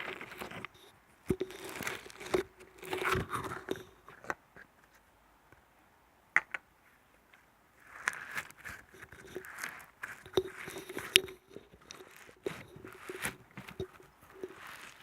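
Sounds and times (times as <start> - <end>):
sharp crunches and clicks: 0.0 - 4.4, 7.8 - 15.0.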